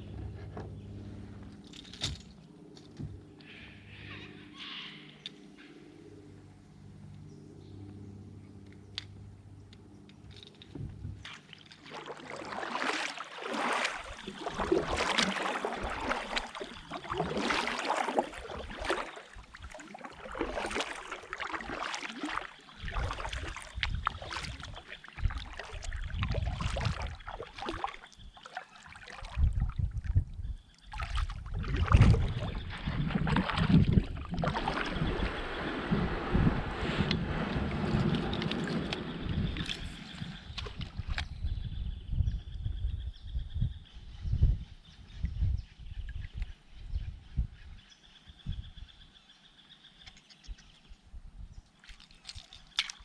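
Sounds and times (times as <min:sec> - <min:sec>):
paddle splashing through water: 0:11.1 - 0:30.1, 0:30.8 - 0:41.3, 0:51.8 - 0:53.0
wind buffeting microphone: 0:22.8 - 0:28.4, 0:29.2 - 0:49.0.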